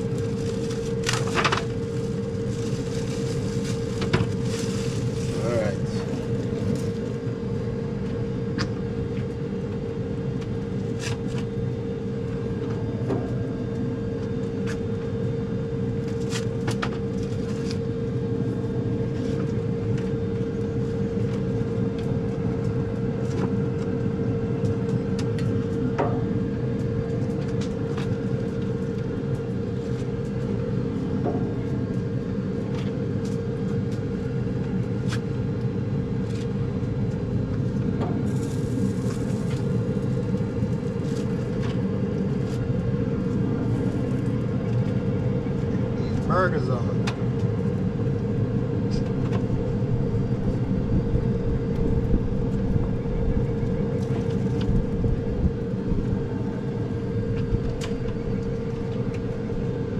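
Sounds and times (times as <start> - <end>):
fire and grill crackling: 0.0 - 59.9
low rumble with hum: 0.0 - 59.9.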